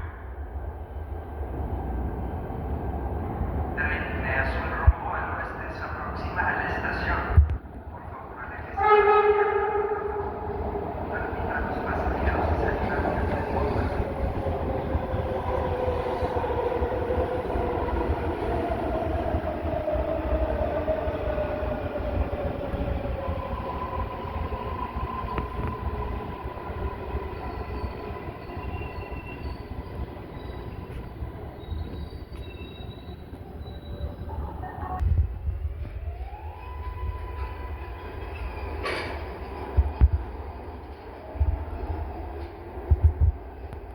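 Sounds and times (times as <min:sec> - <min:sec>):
train rumble: 0:00.0 - 0:43.9
faint high squeals: 0:27.3 - 0:35.0.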